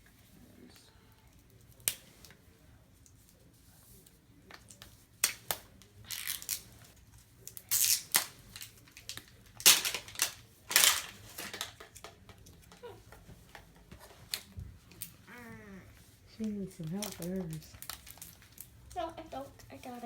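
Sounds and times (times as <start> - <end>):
plastic wrapping being torn: 4.5 - 12.1, 16.8 - 19.0.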